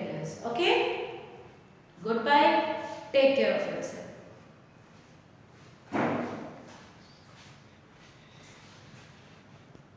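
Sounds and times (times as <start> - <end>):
sudden thump: 5.9 - 6.5.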